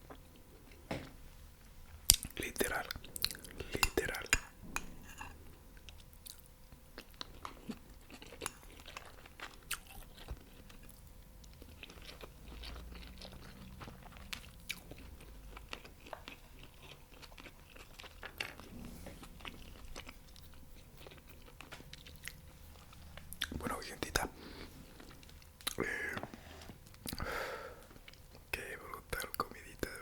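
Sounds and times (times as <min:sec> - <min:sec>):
chewing crispy chicken wings: 0:05.2 - 0:28.5.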